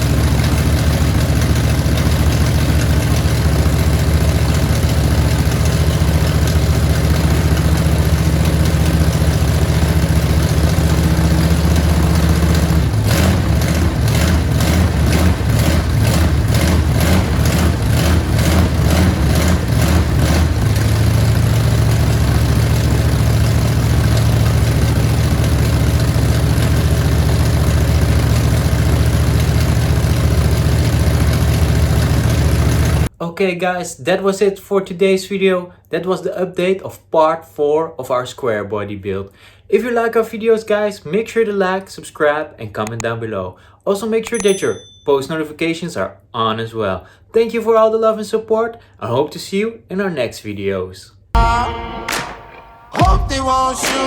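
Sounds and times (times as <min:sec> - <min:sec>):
engine running at low note: 0:00.0 - 0:33.1.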